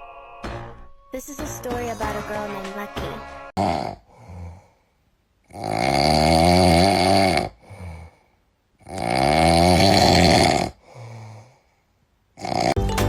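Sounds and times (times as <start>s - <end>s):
dog snoring: 5.5s - 8.1s, 8.8s - 10.8s, 12.4s - 12.8s.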